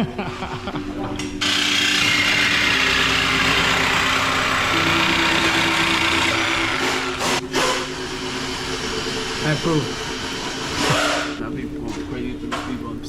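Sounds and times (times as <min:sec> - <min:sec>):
car engine idling loudly: 0:01.4 - 0:07.4.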